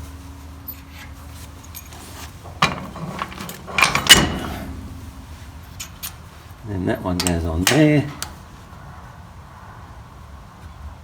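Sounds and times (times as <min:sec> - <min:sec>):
clatter of metal clanks: 0:00.6 - 0:08.4
steel parts knocking and scraping: 0:00.7 - 0:08.4.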